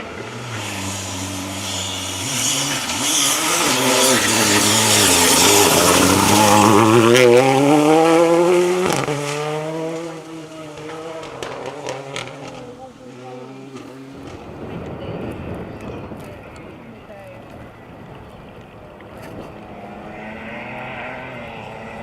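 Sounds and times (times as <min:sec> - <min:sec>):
rally car engine revving: 0:00.0 - 0:15.0, 0:19.0 - 0:22.0.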